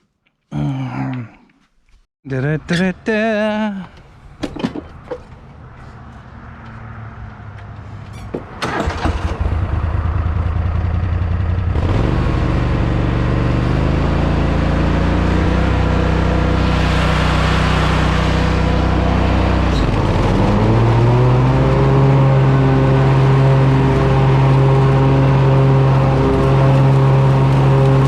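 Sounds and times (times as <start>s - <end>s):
mower engine starting and running: 8.1s - 28.0s.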